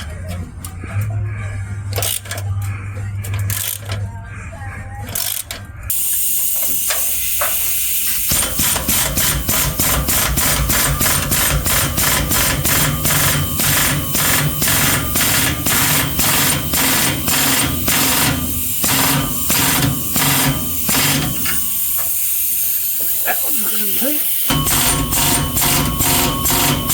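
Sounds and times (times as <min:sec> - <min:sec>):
power tool pulsing: 0:05.2 - 0:26.9
hiss: 0:05.9 - 0:26.9.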